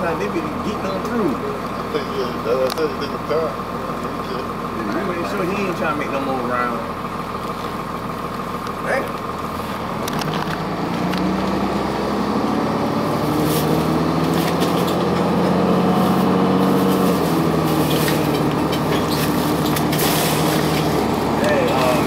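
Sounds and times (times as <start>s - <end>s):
diesel bus engine pulling away: 0.0s - 22.0s.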